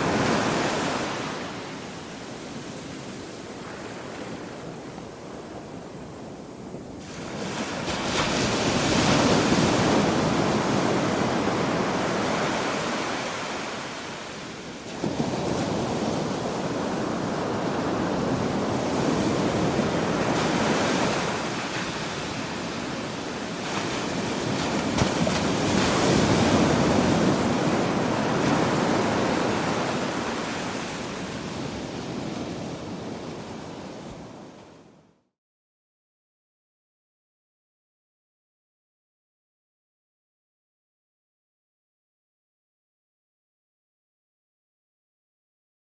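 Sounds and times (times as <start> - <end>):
ocean waves breaking on shore: 0.0 - 35.0.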